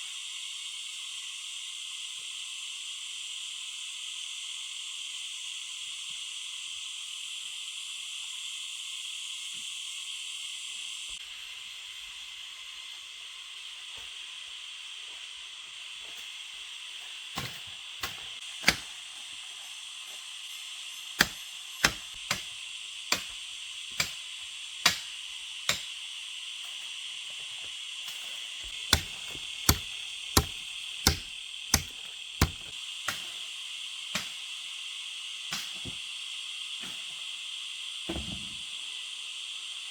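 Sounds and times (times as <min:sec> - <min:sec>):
high-pitched insect chorus: 0:00.0 - 0:39.9
sharp knocks: 0:28.9 - 0:32.7.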